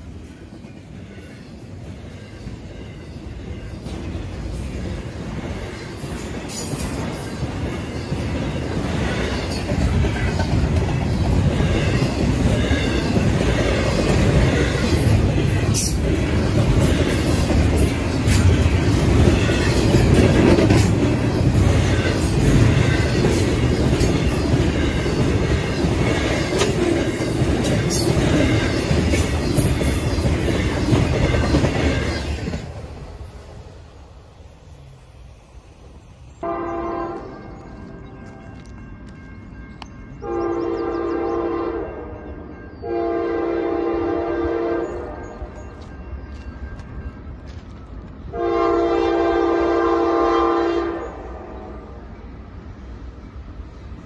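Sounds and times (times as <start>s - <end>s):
freight train wheels clacking: 0.0s - 33.5s.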